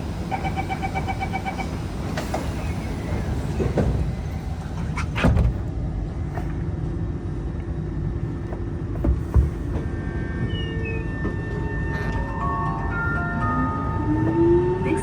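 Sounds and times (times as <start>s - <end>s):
train doors sliding shut: 0.2s - 5.7s.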